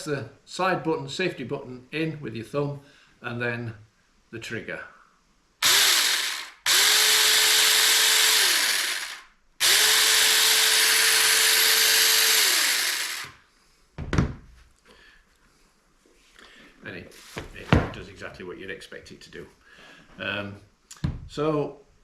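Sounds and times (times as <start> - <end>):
mini chainsaw whirring: 5.6 - 13.4
thump: 14.0 - 14.5, 21.0 - 21.3.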